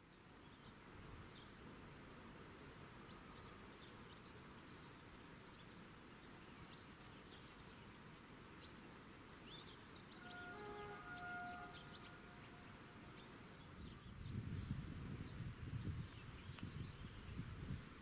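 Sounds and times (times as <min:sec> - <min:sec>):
faint outdoor background noise: 0:00.0 - 0:18.0
bird chirps: 0:09.4 - 0:14.6.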